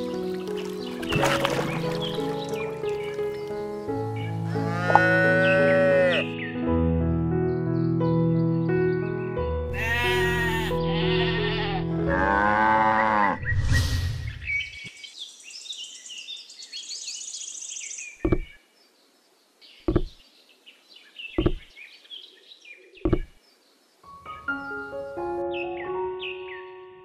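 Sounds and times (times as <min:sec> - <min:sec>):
many birds chirping: 0:00.3 - 0:04.4, 0:14.2 - 0:24.9
farm animal bleating: 0:04.4 - 0:06.3, 0:09.7 - 0:13.4
dull knocks: 0:18.2 - 0:18.5, 0:19.9 - 0:20.2, 0:21.4 - 0:21.7, 0:23.0 - 0:23.4.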